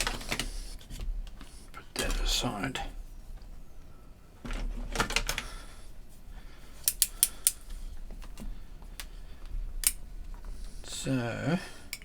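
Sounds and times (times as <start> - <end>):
tools and cable rustling: 0.0 - 2.4, 4.4 - 5.8, 6.7 - 10.9
sharp clicks: 6.8 - 7.6.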